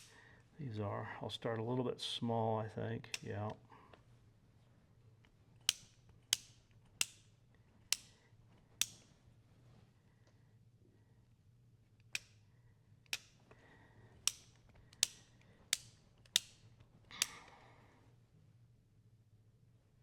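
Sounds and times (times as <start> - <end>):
metal tools clicking and tapping: 14.2 - 17.4.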